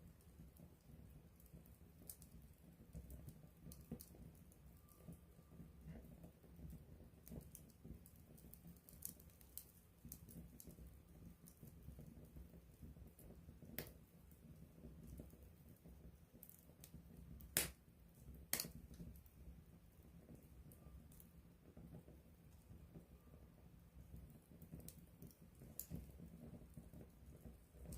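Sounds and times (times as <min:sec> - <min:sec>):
campfire crackling: 0:00.0 - 0:27.9
flame rustling: 0:00.0 - 0:27.9
sharp pops of fire: 0:11.4 - 0:14.1, 0:16.4 - 0:19.3.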